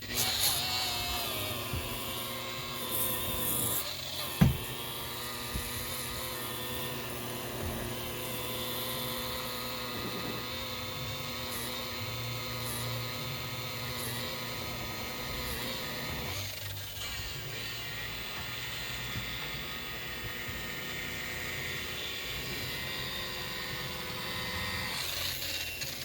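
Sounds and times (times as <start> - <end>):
electric buffer running: 0.0 - 26.0.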